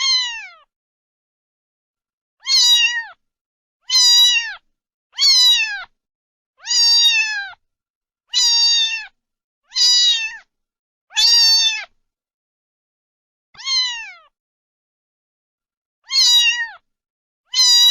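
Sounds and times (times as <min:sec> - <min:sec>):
cat meowing: 0:00.0 - 0:00.7, 0:02.4 - 0:03.2, 0:03.8 - 0:04.6, 0:05.2 - 0:05.9, 0:06.6 - 0:07.6, 0:08.3 - 0:10.5, 0:11.1 - 0:12.0, 0:13.6 - 0:14.4, 0:16.0 - 0:16.8, 0:17.5 - 0:17.9.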